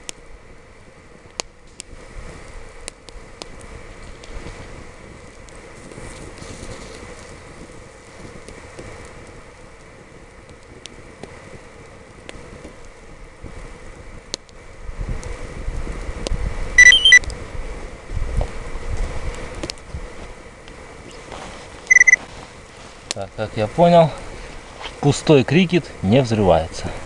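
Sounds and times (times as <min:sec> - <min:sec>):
campfire burning with pops: 0:00.0 - 0:27.0
wind buffeting microphone: 0:00.9 - 0:27.0
high-pitched whistle: 0:16.8 - 0:17.2, 0:21.9 - 0:22.2.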